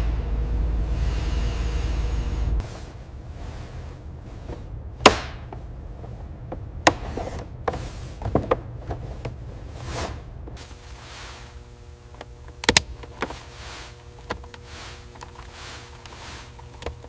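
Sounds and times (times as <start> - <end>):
low steady hum: 0.0 - 17.0
sharp knocks: 5.0 - 5.6.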